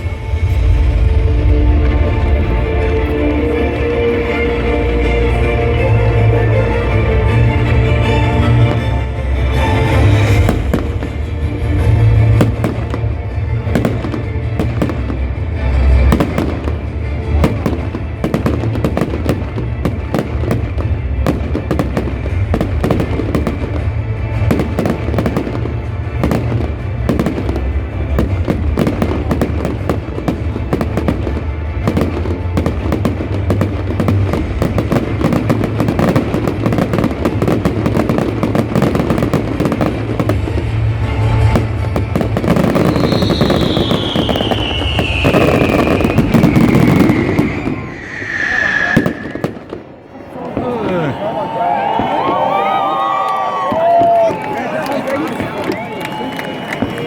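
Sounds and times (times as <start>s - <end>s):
music: 0.0s - 48.4s
fireworks crackling and popping: 0.0s - 50.8s, 51.9s - 57.0s.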